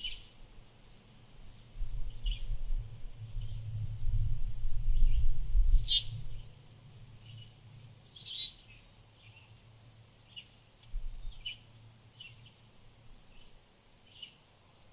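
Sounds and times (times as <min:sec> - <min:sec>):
low rumble: 0:01.9 - 0:06.5
small birds calling: 0:05.7 - 0:06.2, 0:07.4 - 0:09.5.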